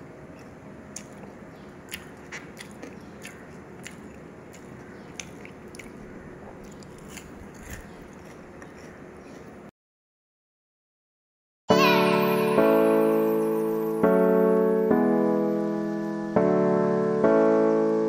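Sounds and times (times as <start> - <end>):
faint steady background noise: 0.0 - 9.7
chewing crunchy fried food: 0.2 - 9.7.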